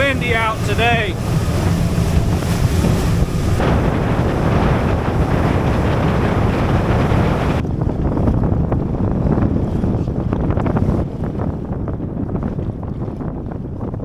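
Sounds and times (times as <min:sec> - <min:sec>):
low rumble of rough water: 0:00.0 - 0:14.0
wind buffeting microphone: 0:00.0 - 0:14.0.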